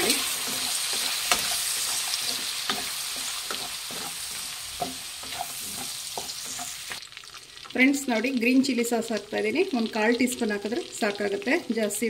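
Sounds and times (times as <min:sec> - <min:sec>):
spatula scraping and knocking pan: 0:00.0 - 0:07.0
chicken sizzling in oil: 0:00.0 - 0:12.0.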